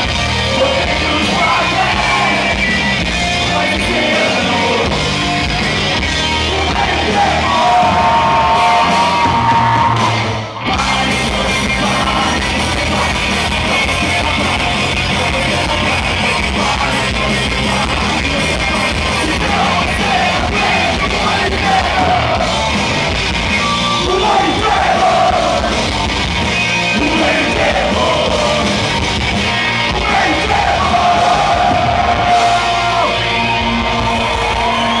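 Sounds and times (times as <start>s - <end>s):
punk band playing live: 0.0s - 35.0s.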